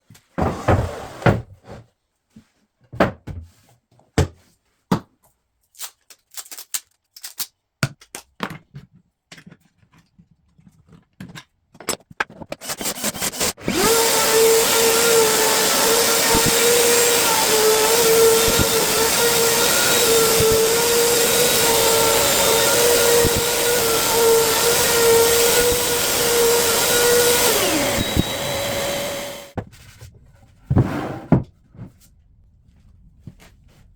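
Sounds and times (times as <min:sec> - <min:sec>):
router whining: 0:12.6 - 0:29.6.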